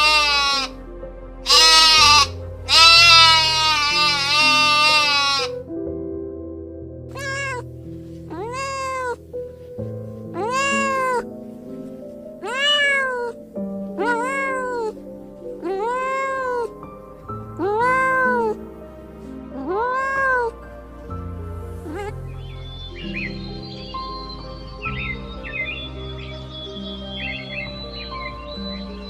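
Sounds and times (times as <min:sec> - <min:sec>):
cat meowing: 0:00.0 - 0:00.8, 0:01.5 - 0:05.6, 0:07.1 - 0:07.7, 0:08.3 - 0:09.2, 0:10.3 - 0:11.3, 0:12.4 - 0:13.4, 0:14.0 - 0:16.8, 0:17.6 - 0:18.6, 0:19.6 - 0:20.6, 0:21.8 - 0:22.2
background music: 0:00.0 - 0:29.0.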